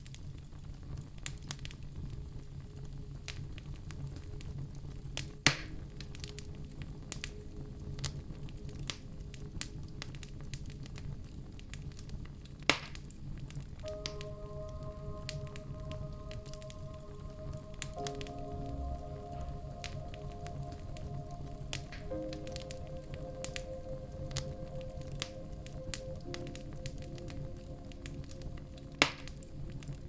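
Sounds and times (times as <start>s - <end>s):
fire crackling: 0.0s - 30.0s
loud sharp pops of fire: 12.6s - 13.2s.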